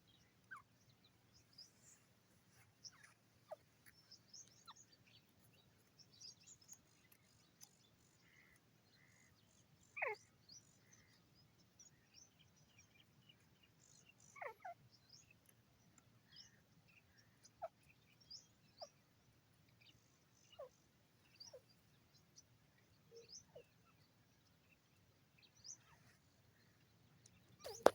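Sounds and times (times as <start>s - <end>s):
bird chirps: 0.0s - 15.6s, 19.8s - 27.9s.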